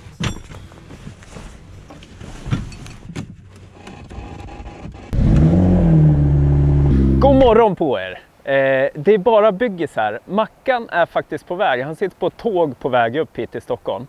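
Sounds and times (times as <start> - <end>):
car engine starting and idling: 3.5 - 7.6.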